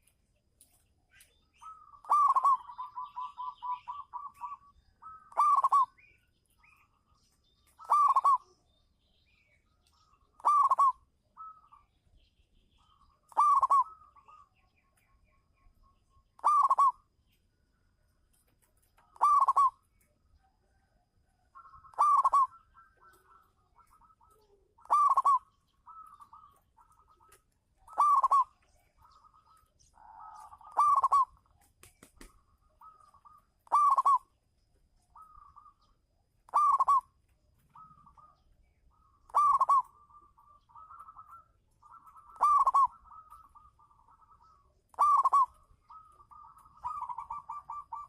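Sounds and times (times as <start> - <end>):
dove cooing: 1.6 - 6.2, 7.7 - 8.6, 10.2 - 11.9, 12.8 - 14.6, 16.4 - 17.1, 19.0 - 31.6, 32.2 - 34.4, 35.1 - 48.0.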